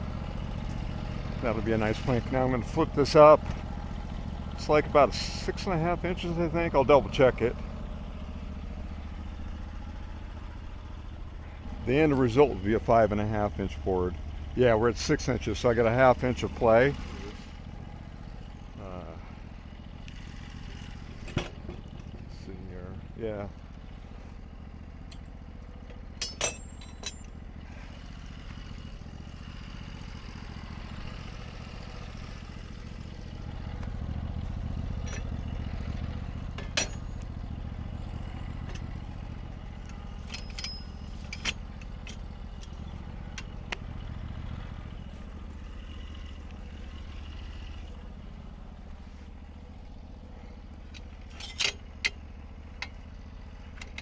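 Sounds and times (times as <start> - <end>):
sawmill engine idling: 0.0 - 54.0
sharp metal clanks: 25.1 - 27.4, 35.0 - 35.6, 36.5 - 37.3, 39.7 - 43.6, 50.8 - 53.0.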